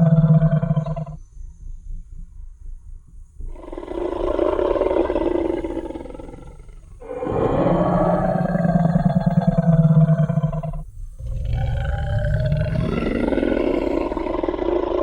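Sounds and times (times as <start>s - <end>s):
low rumble: 0.0s - 15.0s
dinosaur roar: 3.6s - 15.0s.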